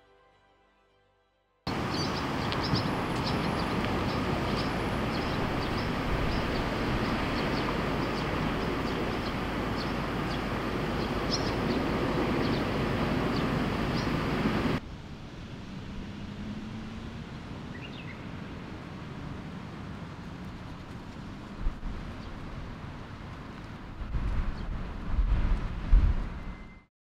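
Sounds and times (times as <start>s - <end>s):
electric train rumbling on rails: 1.7s - 26.9s
high wheel squeaks: 26.3s - 26.9s.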